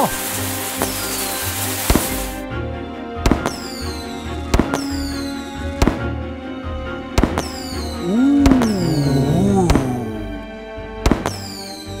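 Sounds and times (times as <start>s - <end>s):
high falling fizz: 0.0s - 2.4s.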